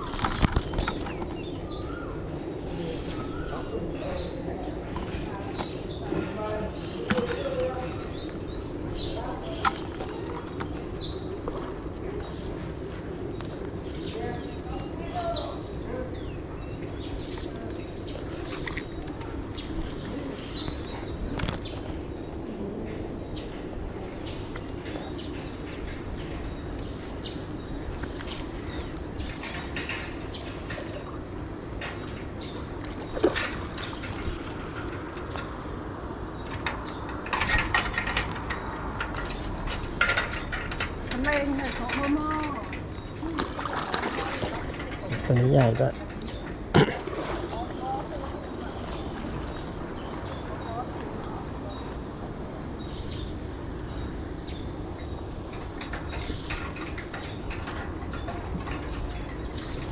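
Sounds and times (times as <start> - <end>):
water splashing and dribbling: 31.8 - 35.7, 36.6 - 46.0, 46.7 - 51.4.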